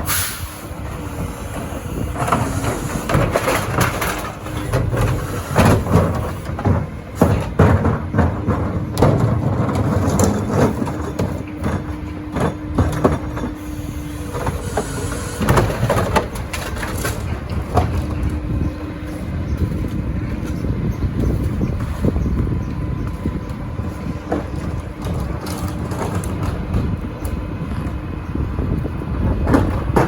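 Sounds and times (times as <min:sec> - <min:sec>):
truck engine and hydraulics humming: 0:00.0 - 0:30.0
recyclables clattering in hopper: 0:00.9 - 0:20.7, 0:24.0 - 0:27.2.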